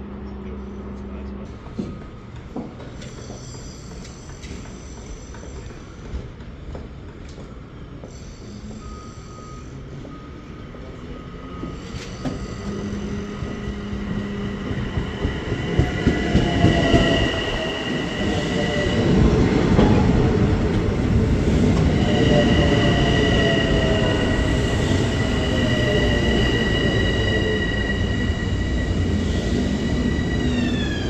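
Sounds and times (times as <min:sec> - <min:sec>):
train rumbling: 0:09.7 - 0:31.0.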